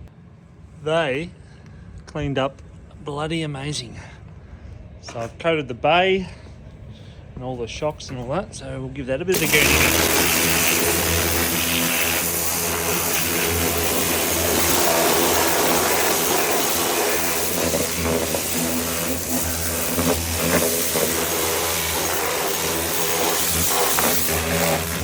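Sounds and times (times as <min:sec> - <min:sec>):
pressure washer motor humming: 0:09.4 - 0:25.0
water jet hissing: 0:09.4 - 0:25.0.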